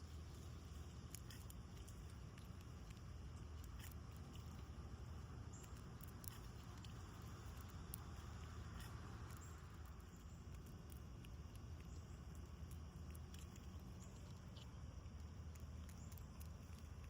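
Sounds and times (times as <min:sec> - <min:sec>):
seed shells clicking and cracking: 0:00.0 - 0:17.0
steady low hum: 0:00.0 - 0:17.0.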